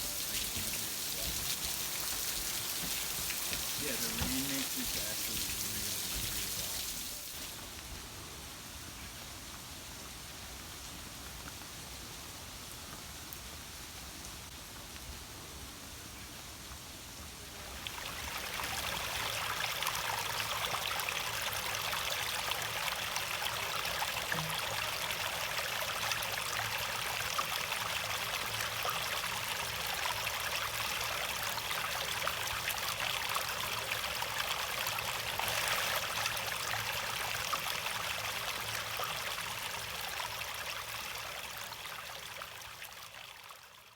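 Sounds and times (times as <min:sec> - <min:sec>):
running water: 0:00.0 - 0:08.3, 0:17.4 - 0:43.9
steady rain: 0:00.0 - 0:43.9.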